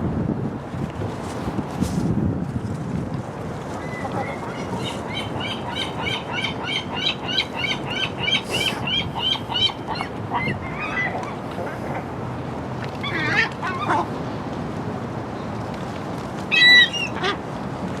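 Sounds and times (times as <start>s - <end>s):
wind and water rushing: 0.0s - 18.0s
gull calling: 3.8s - 11.4s.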